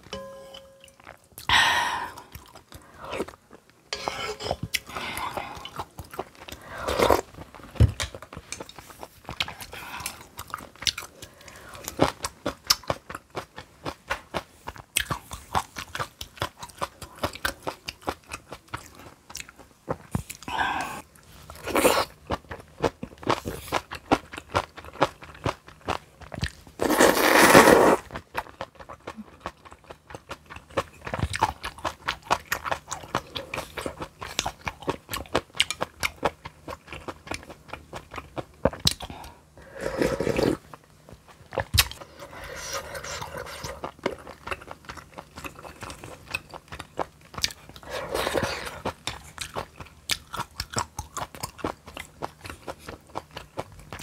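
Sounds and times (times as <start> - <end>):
crunchy chewing: 21.4 - 54.0.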